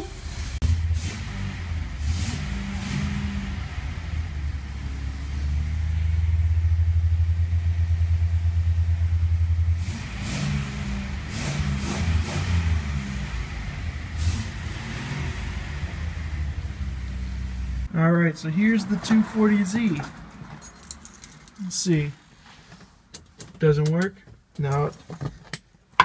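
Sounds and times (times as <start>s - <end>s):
car engine running: 0.0s - 17.9s.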